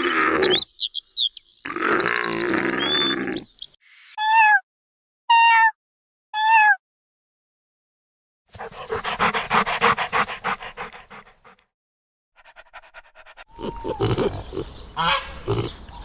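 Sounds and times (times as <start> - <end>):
dog panting: 8.5 - 11.6, 12.4 - 13.6.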